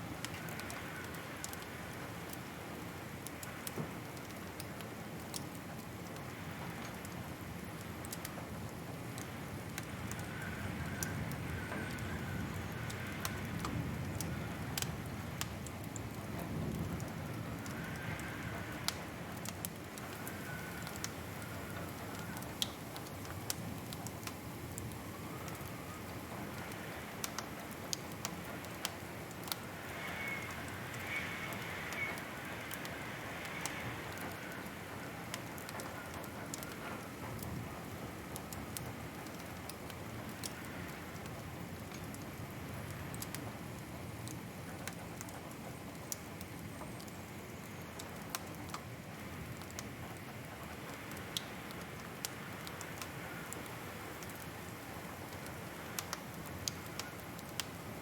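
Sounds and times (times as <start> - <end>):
wood fire popping and snapping: 0.2 - 58.0
faint wavering whistle: 30.0 - 32.3.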